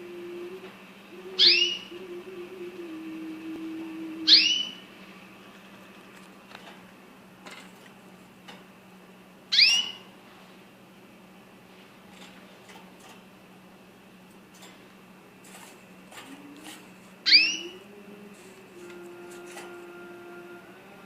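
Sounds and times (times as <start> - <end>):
bird chirping: 1.4 - 1.9, 9.5 - 10.0, 17.2 - 17.8.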